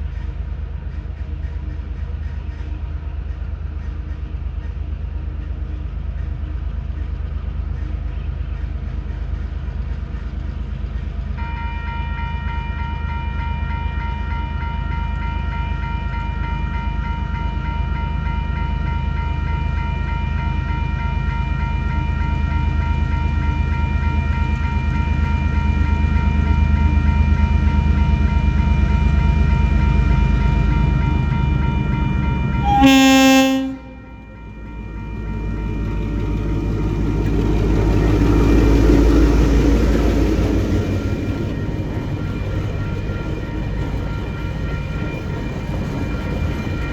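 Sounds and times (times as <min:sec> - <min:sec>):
diesel locomotive rumbling past: 0:24.0 - 0:46.9
high whine: 0:32.6 - 0:34.3
train horn blast: 0:32.6 - 0:34.6.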